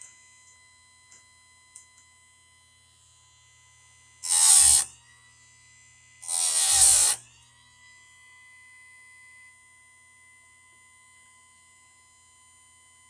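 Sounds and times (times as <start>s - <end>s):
grinding wheel rasp on chain: 4.2s - 4.9s, 6.2s - 7.2s.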